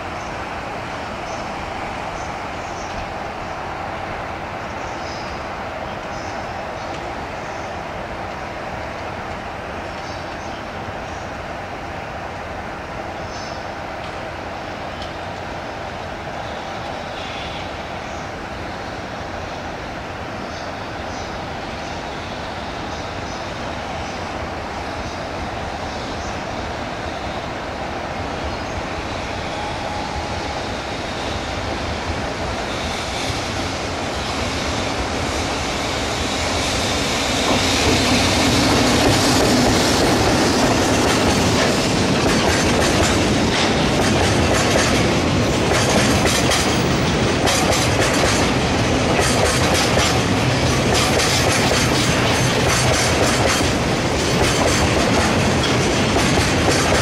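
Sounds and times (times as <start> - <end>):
freight train passing: 0.0 - 57.0
wheels clacking over rail joints: 37.4 - 57.0.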